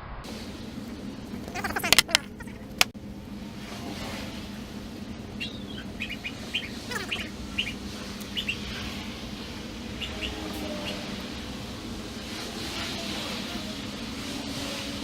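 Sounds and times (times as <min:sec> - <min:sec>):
steady low hum: 0:00.0 - 0:15.0
small birds chirping: 0:01.3 - 0:02.9, 0:05.2 - 0:11.4.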